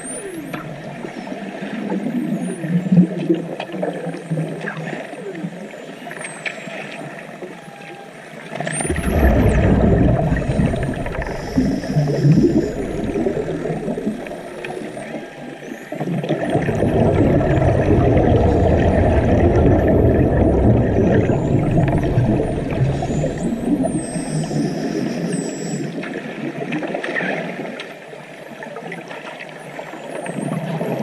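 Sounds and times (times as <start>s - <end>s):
underwater rushing bubbling: 8.6s - 27.6s
faint high whistles: 21.0s - 26.0s.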